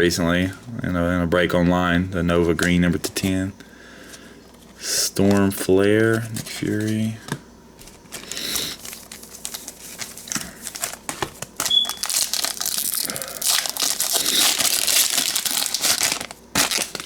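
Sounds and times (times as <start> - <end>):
wrapper crinkling and tearing: 7.8 - 17.0.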